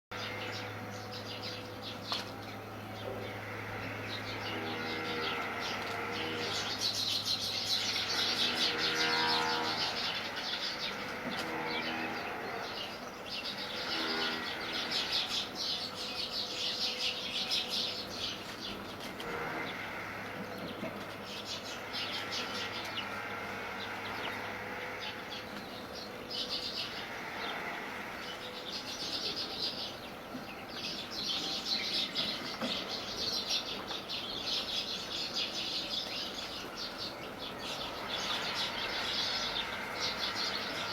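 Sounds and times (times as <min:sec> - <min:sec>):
sparrows chirping: 0:00.1 - 0:40.9.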